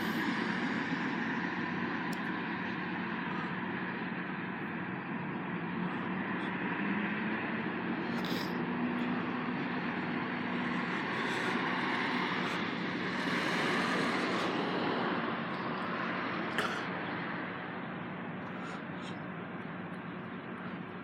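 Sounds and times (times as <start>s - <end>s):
low engine hum: 0.0s - 21.0s
road vehicle noise: 0.0s - 21.0s
vehicle passing: 5.5s - 21.0s.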